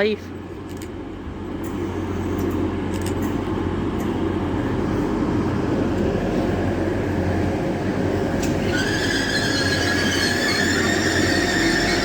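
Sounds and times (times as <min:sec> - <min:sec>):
rail noise: 0:00.0 - 0:12.0
train droning: 0:00.0 - 0:12.0.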